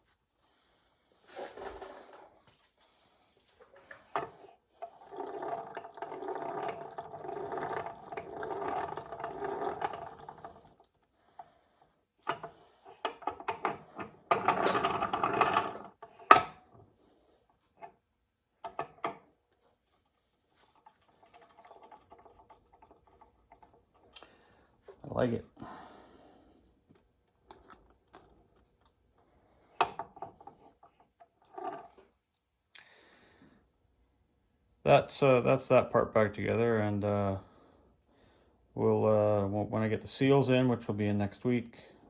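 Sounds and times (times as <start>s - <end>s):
rubbing and scraping metal parts: 12.2s - 16.8s.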